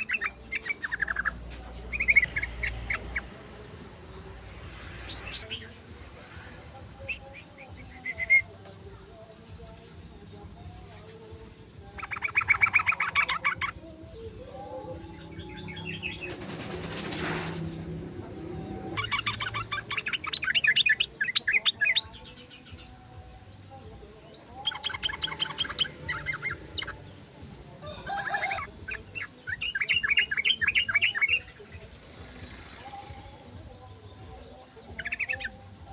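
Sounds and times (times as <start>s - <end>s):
bird bubbly chattering song: 0.0s - 3.3s, 6.9s - 8.5s, 11.8s - 17.0s, 18.8s - 22.8s, 23.6s - 27.3s, 28.1s - 31.6s, 34.9s - 35.9s
brief rushing noise: 15.0s - 19.1s.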